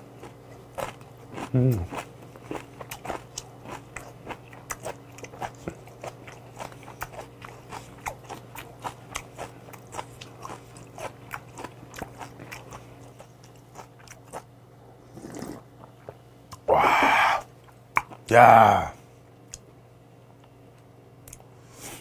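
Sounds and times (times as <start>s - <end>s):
person chewing food: 0.0s - 18.8s.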